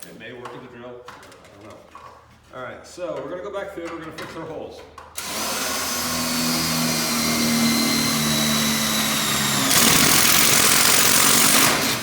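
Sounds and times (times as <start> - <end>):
drill bit grinding metal: 5.2 - 12.0
power drill whining: 5.2 - 12.0.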